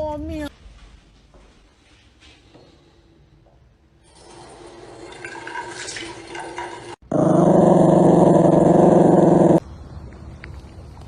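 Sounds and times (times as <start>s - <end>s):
dog growling: 7.1s - 9.6s.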